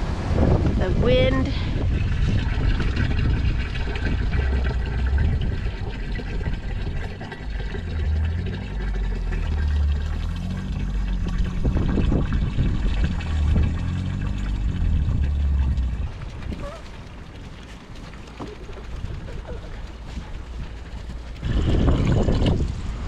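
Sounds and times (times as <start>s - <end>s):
storm wind buffeting microphone: 0.0s - 7.9s, 10.9s - 23.0s.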